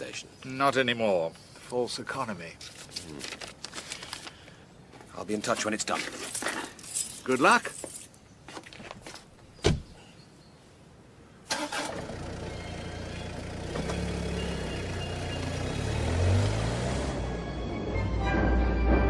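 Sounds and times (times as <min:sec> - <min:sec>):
car door shutting: 0:09.6 - 0:09.9
car engine starting and running: 0:11.5 - 0:18.2.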